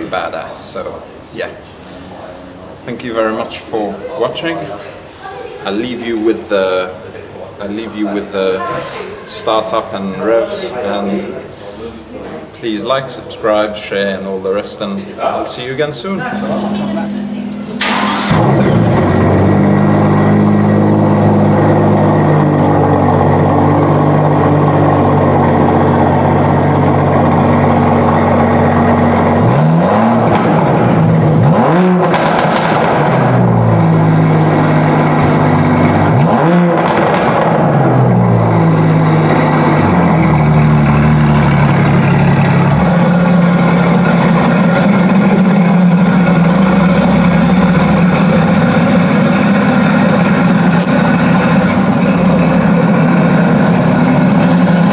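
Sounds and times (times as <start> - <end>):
car engine idling and revving: 16.2 - 54.9.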